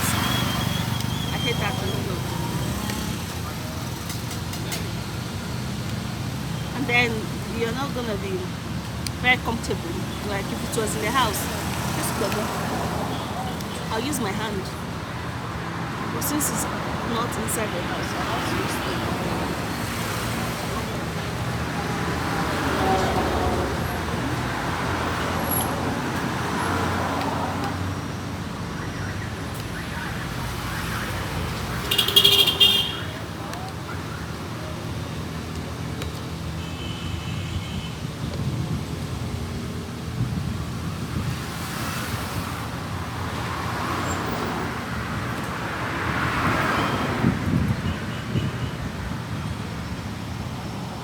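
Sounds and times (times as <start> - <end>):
road traffic hum: 0.0 - 51.0
rumble of passing vehicles: 0.0 - 51.0
vehicle passing near: 9.3 - 28.0.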